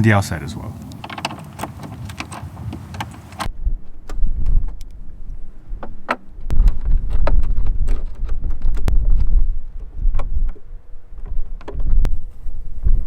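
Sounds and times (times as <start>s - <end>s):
wind buffeting microphone: 0.0s - 13.0s
sharp clicks and knocks: 0.8s - 3.5s.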